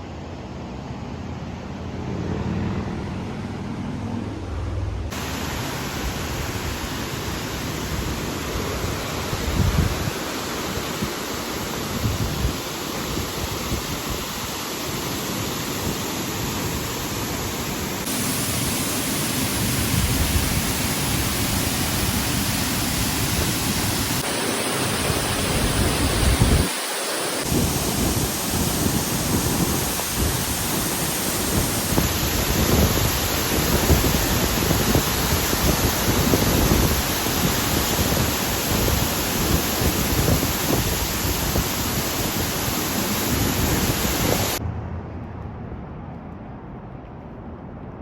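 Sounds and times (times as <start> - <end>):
rushing water: 5.1 - 44.6
wind buffeting microphone: 8.0 - 14.5, 18.0 - 48.0.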